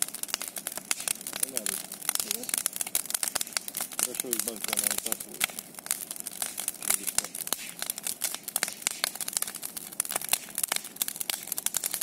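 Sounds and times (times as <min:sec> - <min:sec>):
bonfire crackling and popping: 0:00.0 - 0:12.0
hiss of burning: 0:00.0 - 0:12.0.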